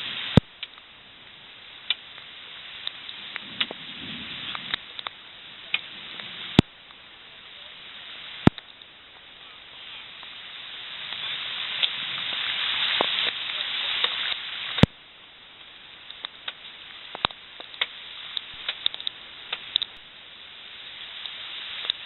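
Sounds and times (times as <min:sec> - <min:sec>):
rain hissing: 0:00.0 - 0:22.0
sharp clicks: 0:08.4 - 0:08.9, 0:16.1 - 0:20.0.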